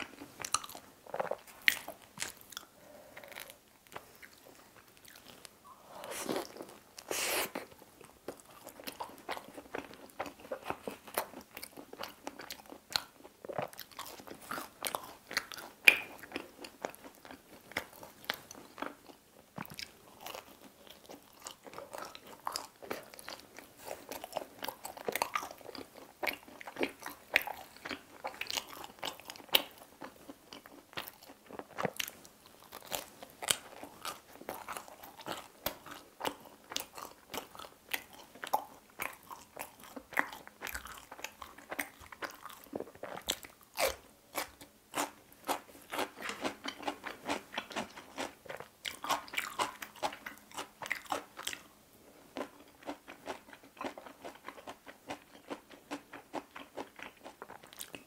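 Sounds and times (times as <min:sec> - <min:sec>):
person chewing crunchy food: 0:00.0 - 0:58.0.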